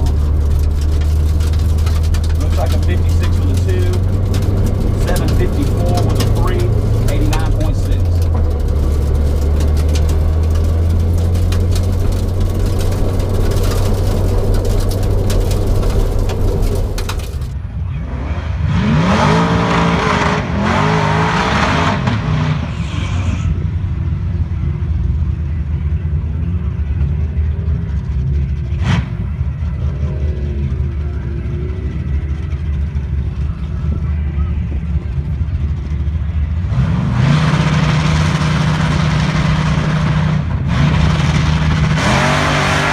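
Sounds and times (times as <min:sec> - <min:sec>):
car engine droning and revving: 0:00.0 - 0:42.9.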